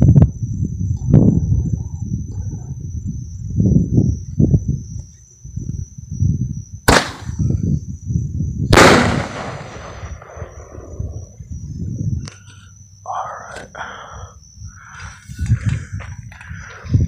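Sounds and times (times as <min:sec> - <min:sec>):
high insect drone: 0:00.0 - 0:17.0
firework bangs: 0:06.9 - 0:07.4, 0:08.7 - 0:11.0.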